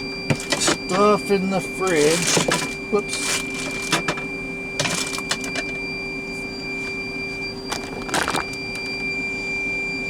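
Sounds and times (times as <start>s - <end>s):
alarm buzzer high tone: 0.0s - 10.0s
plastic bags rustling: 7.7s - 8.6s.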